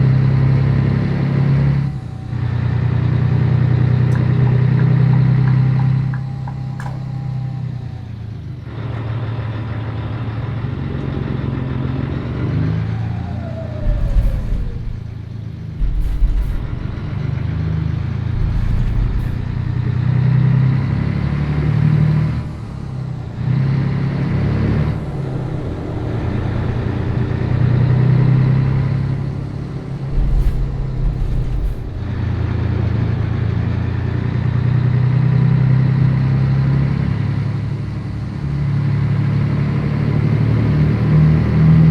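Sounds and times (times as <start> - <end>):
diesel truck engine running: 0.0 - 41.9
low thumps: 13.0 - 21.2, 29.2 - 34.4.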